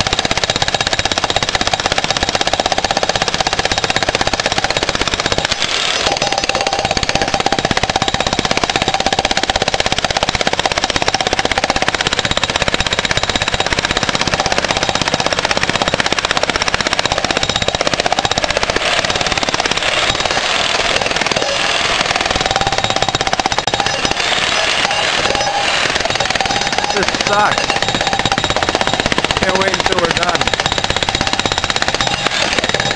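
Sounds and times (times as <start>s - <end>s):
jackhammer breaking concrete: 0.0s - 32.9s.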